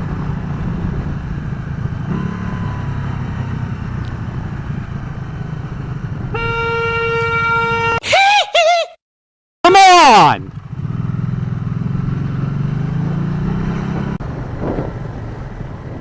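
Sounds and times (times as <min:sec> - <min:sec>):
wind rumble: 0:00.0 - 0:07.7, 0:10.4 - 0:16.0
motorcycle engine: 0:00.0 - 0:08.0, 0:09.7 - 0:16.0
vehicle horn: 0:06.3 - 0:08.0.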